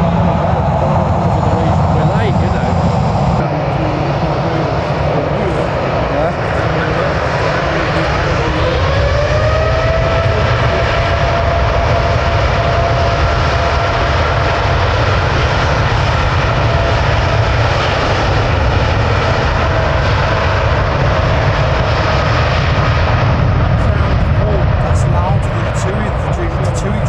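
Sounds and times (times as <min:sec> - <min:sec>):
jet engines spooling up: 0:00.0 - 0:27.0.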